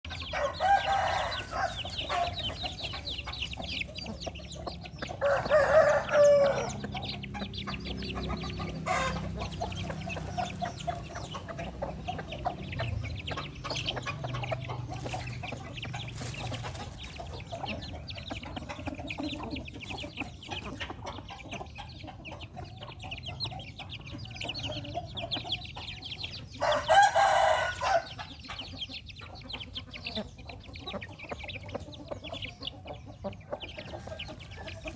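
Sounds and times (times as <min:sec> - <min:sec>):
chickens clucking: 0:00.0 - 0:34.9
rooster crowing: 0:00.3 - 0:02.4, 0:05.2 - 0:06.9, 0:26.6 - 0:28.2.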